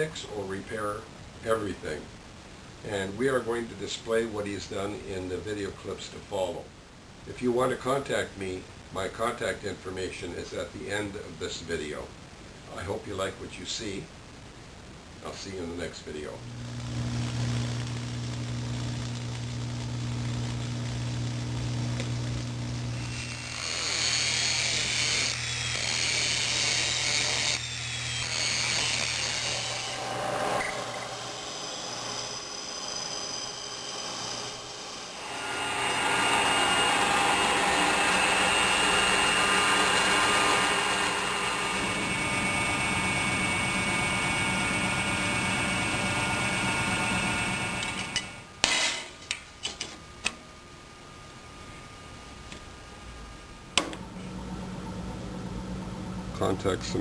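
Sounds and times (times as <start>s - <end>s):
power tool motor hum: 16.6s - 48.8s
high-pitched metal cutting: 23.0s - 49.1s
metal machining: 23.0s - 49.1s.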